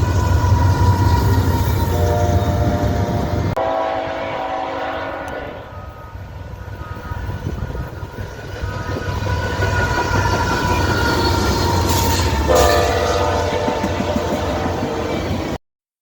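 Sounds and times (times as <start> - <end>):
train rumbling past: 0.0 - 15.6
locomotive horn blast: 1.8 - 6.2, 12.5 - 15.2.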